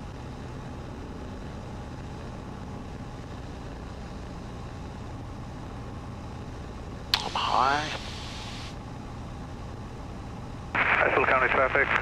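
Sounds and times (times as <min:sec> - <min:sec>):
light aircraft engine droning: 0:00.0 - 0:12.0.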